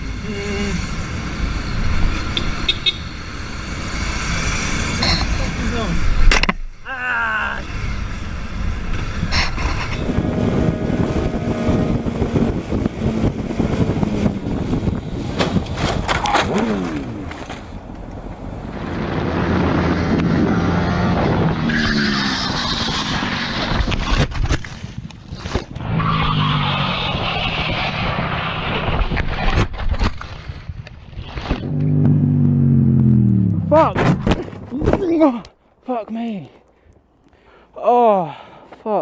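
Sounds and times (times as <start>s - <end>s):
road and wind noise: 0.0s - 39.0s
motorcycle engine revving: 9.8s - 17.7s, 31.5s - 34.6s.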